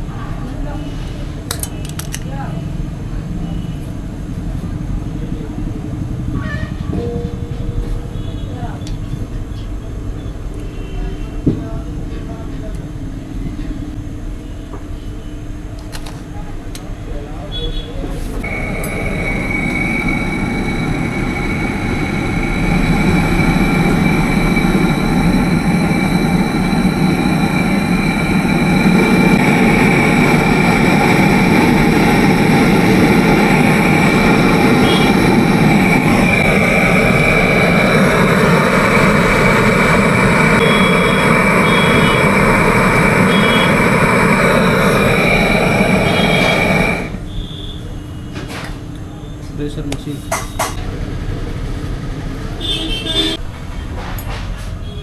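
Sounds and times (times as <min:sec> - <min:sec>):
electric pump humming and whining: 0:18.4 - 0:47.3.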